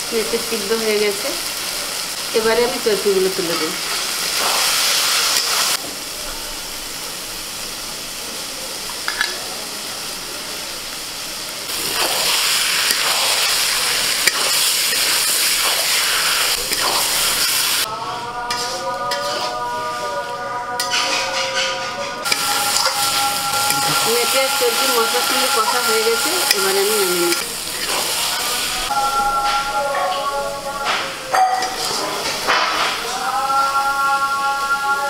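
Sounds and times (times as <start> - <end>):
meat frying and sizzling: 0.0 - 17.9, 18.5 - 35.0
spatula scraping a pan: 18.5 - 20.0, 20.8 - 28.7.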